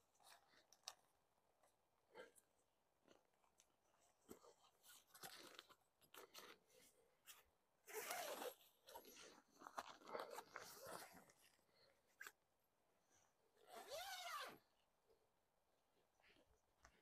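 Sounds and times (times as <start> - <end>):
tent fabric rustling: 6.2 - 11.6.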